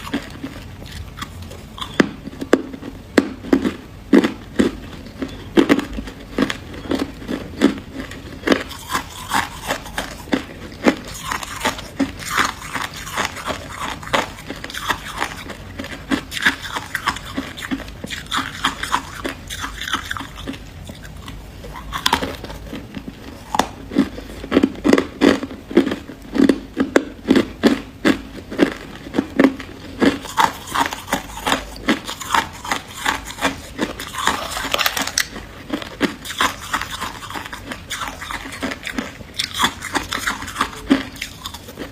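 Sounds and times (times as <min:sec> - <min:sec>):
crisp crunches of chewing frost: 0:28.6 - 0:41.9.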